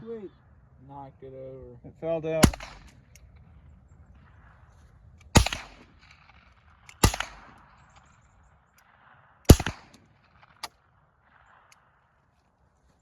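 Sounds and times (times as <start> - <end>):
rifle shots: 2.4 - 3.3, 4.3 - 8.2, 8.8 - 12.2.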